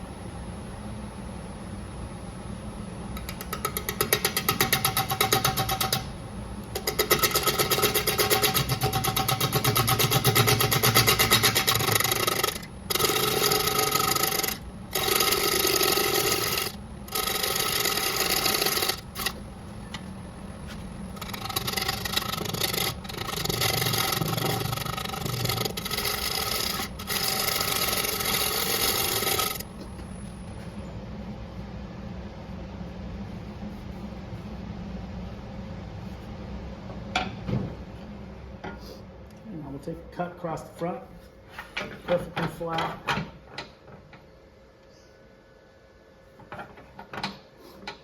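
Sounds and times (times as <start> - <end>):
faint steady hum: 0.0 - 48.0
gouge scraping wood on lathe: 6.8 - 19.4, 20.7 - 29.6.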